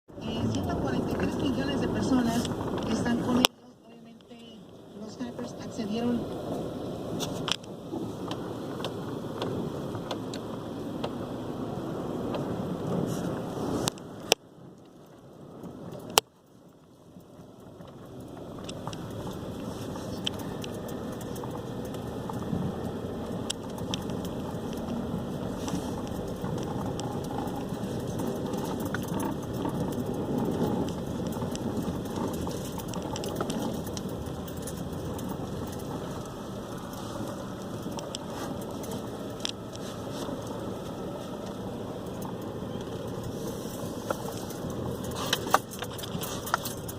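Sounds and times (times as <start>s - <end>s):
small clicks and knocks: 13.9s - 46.9s.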